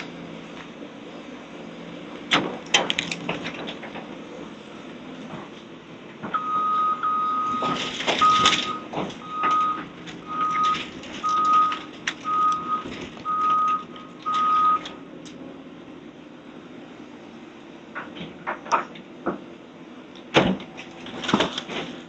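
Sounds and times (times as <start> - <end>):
engine running: 0.0 - 22.0
backup alarm beeping: 6.3 - 15.0
debris knocking and clattering: 7.5 - 14.6, 20.4 - 22.0.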